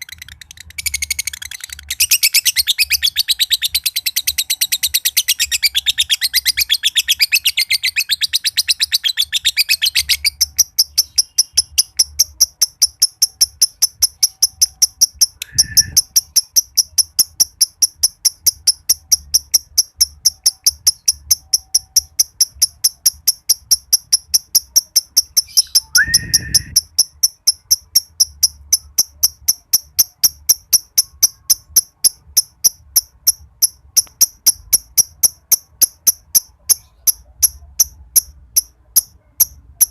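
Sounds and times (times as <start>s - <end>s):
lovebird chattering trill: 0.0s - 39.9s
fast high ticks: 9.2s - 39.9s
short bird chirps: 15.3s - 16.4s, 25.4s - 26.9s.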